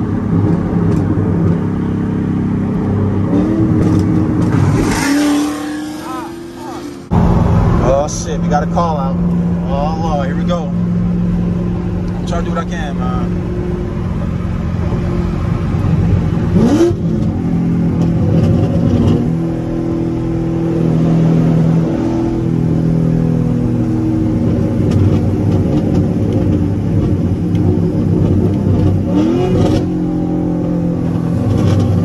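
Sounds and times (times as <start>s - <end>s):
car engine at highway speed: 0.0s - 32.0s.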